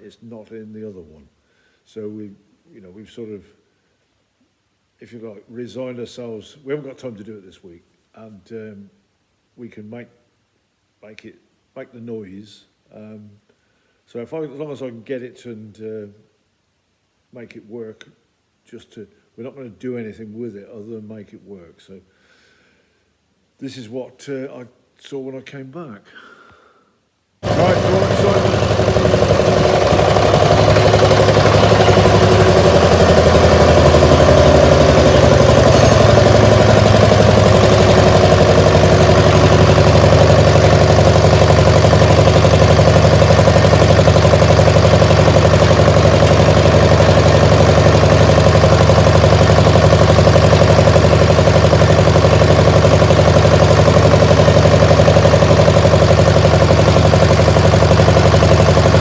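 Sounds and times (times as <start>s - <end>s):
diesel engine running: 27.4s - 59.0s.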